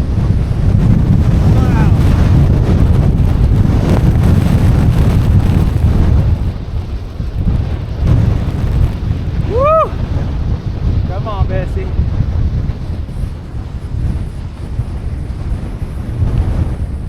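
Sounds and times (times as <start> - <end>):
wind buffeting microphone: 0.0 - 17.0
person whooping: 9.4 - 10.0.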